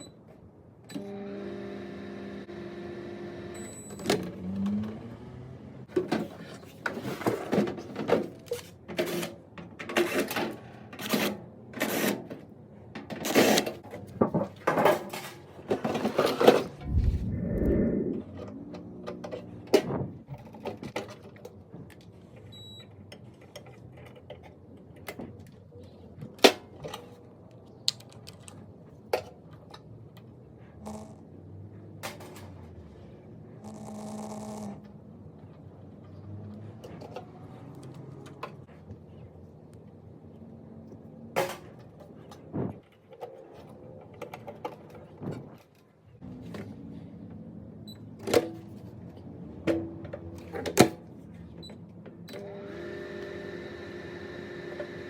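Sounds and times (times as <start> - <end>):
microwave oven humming: 1.0 - 3.9, 52.4 - 55.0
low hum: 16.8 - 18.7.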